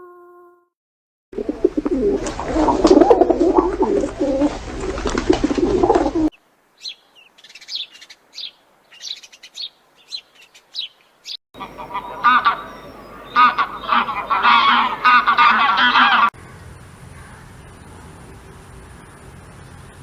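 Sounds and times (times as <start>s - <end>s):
birds cooing: 1.4s - 6.3s, 11.6s - 20.0s.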